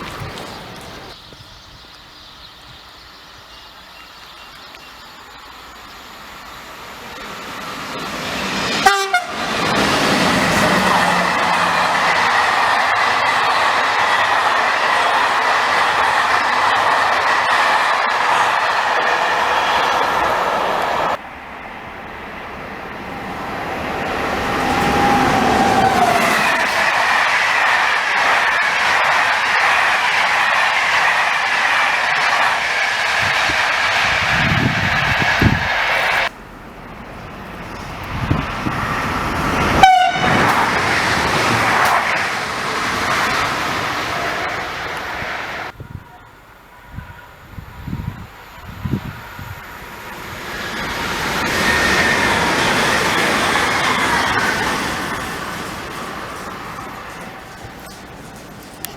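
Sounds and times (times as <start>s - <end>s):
train approaching: 0.0s - 58.9s
train passing at speed: 0.0s - 58.9s
train horn blast: 8.8s - 12.0s, 39.7s - 40.7s.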